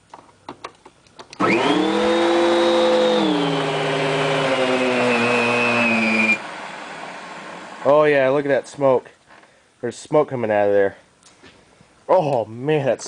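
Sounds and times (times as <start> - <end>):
vacuum cleaner motor whine: 1.4 - 8.0
person speaking: 12.1 - 13.0.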